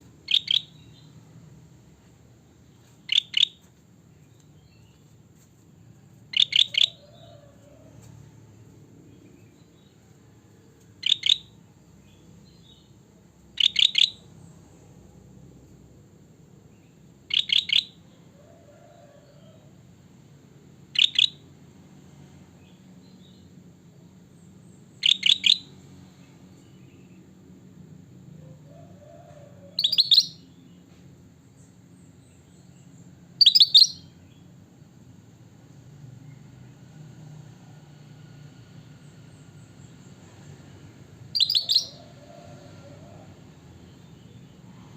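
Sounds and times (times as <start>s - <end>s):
bird calling in high notes: 41.4s - 42.0s.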